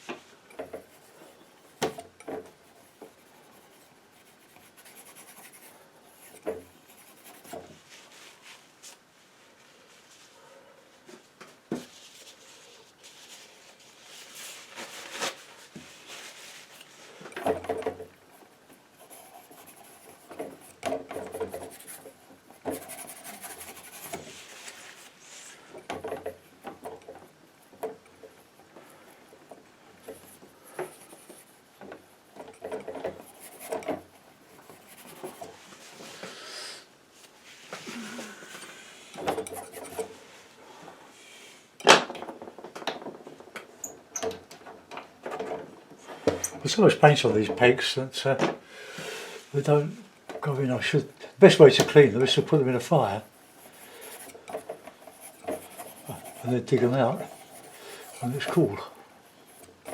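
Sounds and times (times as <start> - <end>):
painting knife scraping on canvas: 53.1 - 59.9.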